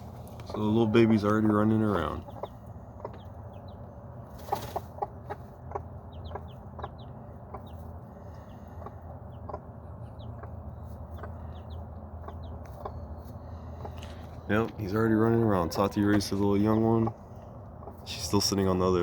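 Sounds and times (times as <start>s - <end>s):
hen clucking: 0.0s - 19.0s
chick cheeping: 4.4s - 7.9s.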